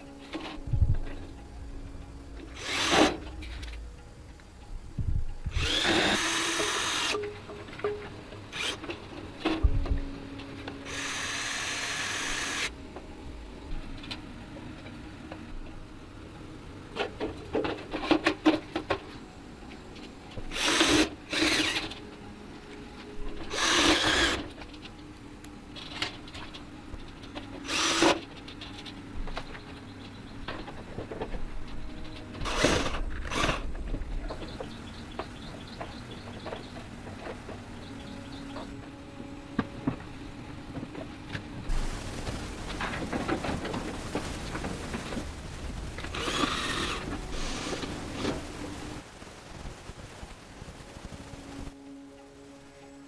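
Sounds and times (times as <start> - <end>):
power tool bursts: 2.6 - 3.2, 5.5 - 7.2, 10.9 - 12.7, 23.5 - 24.5, 27.6 - 28.2.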